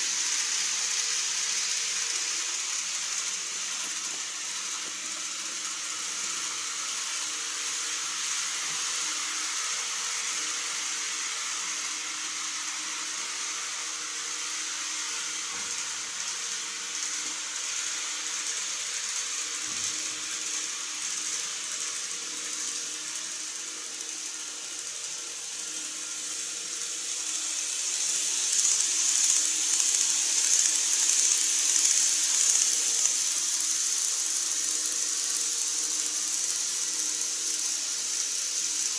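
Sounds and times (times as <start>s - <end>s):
model train hissing on track: 0.0s - 38.9s.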